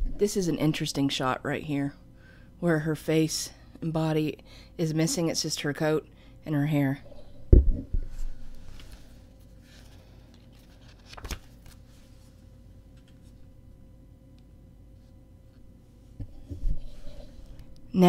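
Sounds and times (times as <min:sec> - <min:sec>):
low thump: 0:07.5 - 0:08.0
paper prints rustling: 0:08.5 - 0:13.4.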